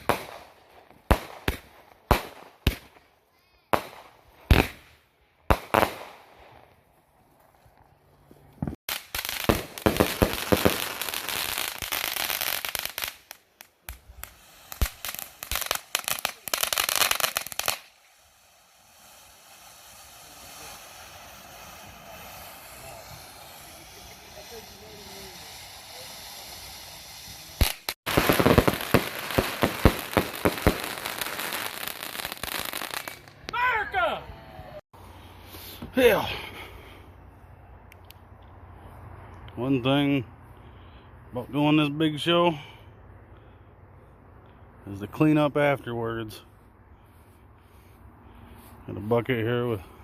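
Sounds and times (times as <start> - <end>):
fireworks bangs: 0.0 - 7.0, 8.6 - 34.8
rapid firecracker crackling: 0.0 - 34.1
steady hiss: 8.9 - 33.3.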